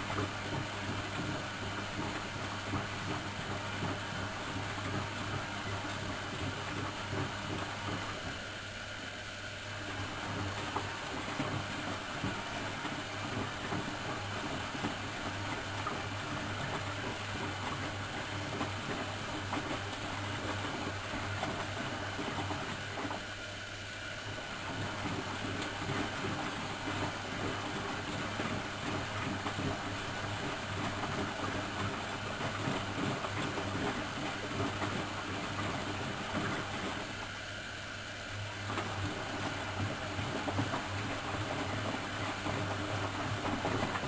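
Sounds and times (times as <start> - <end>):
washing machine churning: 0.0 - 44.0.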